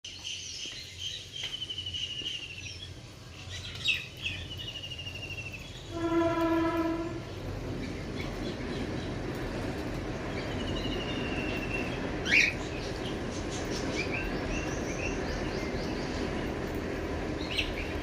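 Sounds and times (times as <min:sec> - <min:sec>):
birds chirping in trills: 0:00.1 - 0:18.0
low rumble of passing traffic: 0:00.1 - 0:18.0
horn steady note: 0:05.9 - 0:07.3.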